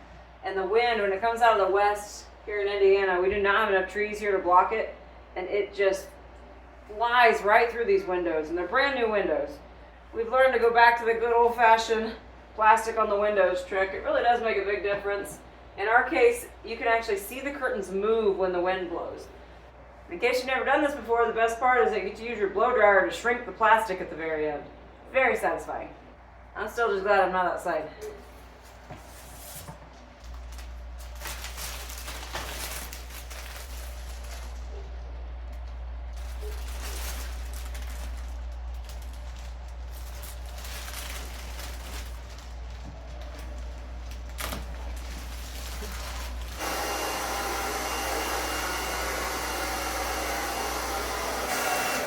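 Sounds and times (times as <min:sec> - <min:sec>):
plastic film crackling: 0:29.9 - 0:46.7
hair dryer running: 0:46.5 - 0:52.0.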